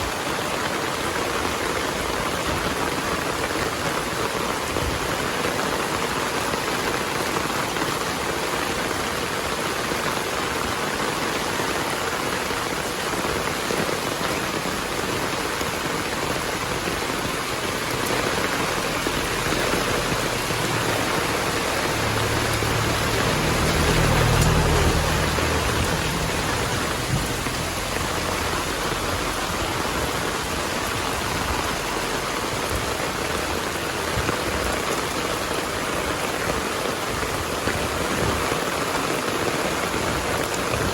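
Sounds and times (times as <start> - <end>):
heavy rain: 0.0 - 40.9
thunder rumble: 16.2 - 33.2.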